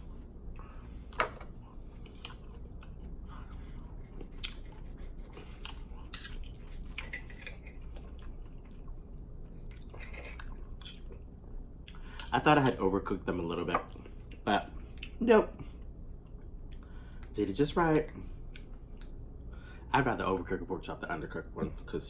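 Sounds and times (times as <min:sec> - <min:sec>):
wet chewing clicks and smacks: 0:02.0 - 0:03.6, 0:04.2 - 0:04.8, 0:05.6 - 0:12.0.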